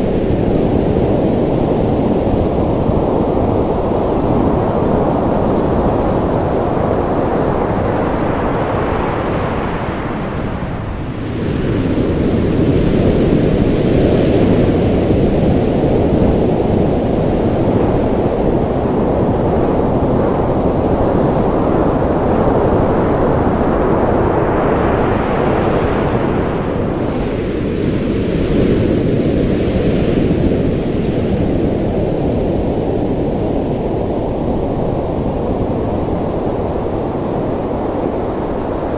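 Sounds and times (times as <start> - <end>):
ocean waves breaking: 2.2 - 19.7.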